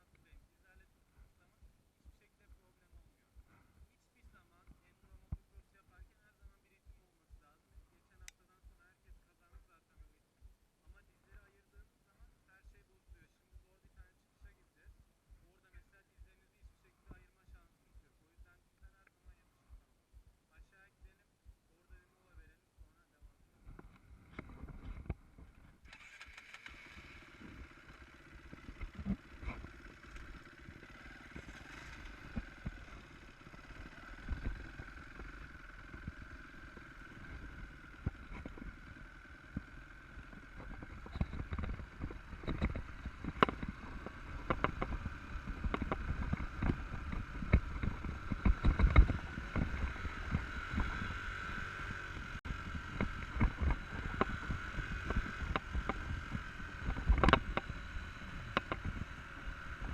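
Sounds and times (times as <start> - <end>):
motorcycle engine: 23.2 - 59.9.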